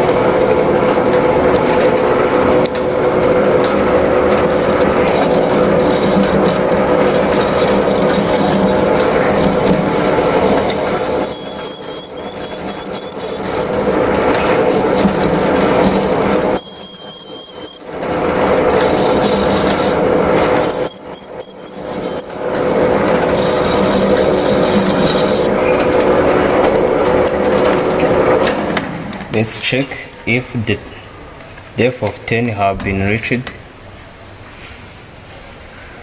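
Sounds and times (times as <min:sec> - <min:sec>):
lathe running: 0:00.0 - 0:30.6
high-pitched tool squeal: 0:04.4 - 0:26.3.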